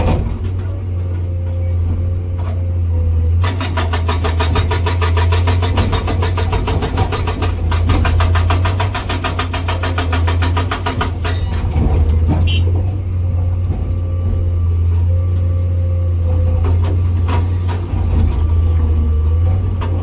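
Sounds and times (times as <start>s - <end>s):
diesel engine running: 0.0s - 20.0s
scattered knocks: 3.4s - 13.8s, 16.2s - 20.0s
hydraulic rock breaker hammering: 3.4s - 15.1s, 16.1s - 20.0s.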